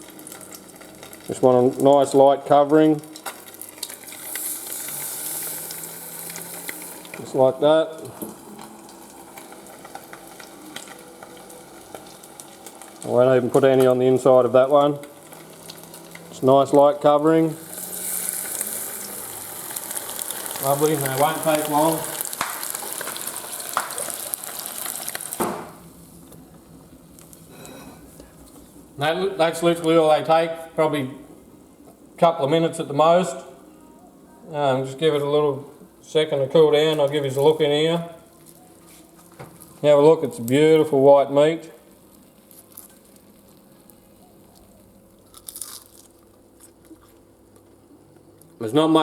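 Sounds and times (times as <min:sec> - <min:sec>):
fish sizzling in hot oil: 0:00.0 - 0:01.8, 0:03.0 - 0:14.0, 0:15.0 - 0:16.4, 0:17.5 - 0:26.1
crackling: 0:02.9 - 0:28.8, 0:41.8 - 0:48.6
fried fish crunching: 0:17.8 - 0:25.4, 0:42.0 - 0:48.5.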